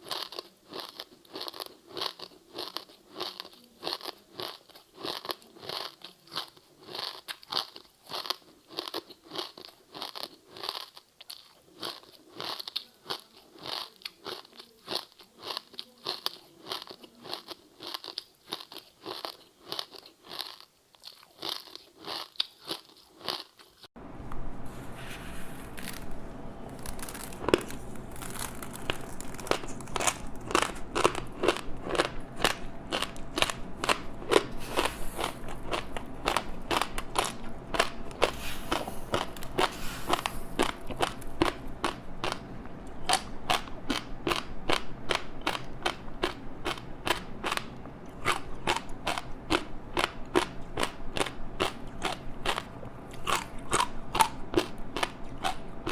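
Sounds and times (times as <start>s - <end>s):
crunchy chewing of snack: 0.0s - 23.9s, 26.7s - 55.9s
steady low hum: 24.0s - 55.9s.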